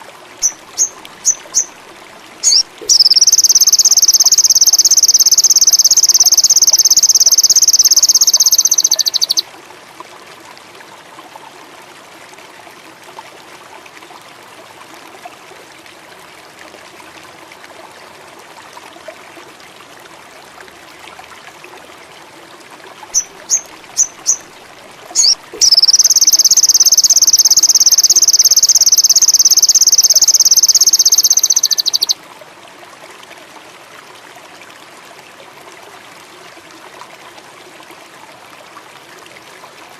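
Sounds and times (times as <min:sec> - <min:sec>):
trickling water: 0:00.0 - 0:39.9
bird singing rapid trill: 0:00.4 - 0:01.7, 0:02.4 - 0:09.4, 0:23.2 - 0:24.4, 0:25.2 - 0:32.2
short high bird chirps: 0:00.4 - 0:01.7, 0:02.4 - 0:09.4, 0:23.1 - 0:24.4, 0:25.2 - 0:32.2
insects: 0:02.4 - 0:09.4, 0:25.2 - 0:32.2.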